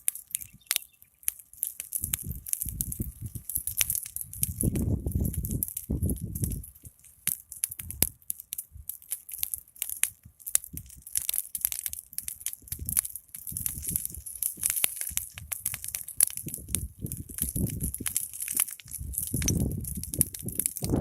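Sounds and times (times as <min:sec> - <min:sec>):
wood fire crackling and popping: 0:00.0 - 0:21.0
low rush of flame: 0:12.2 - 0:21.0.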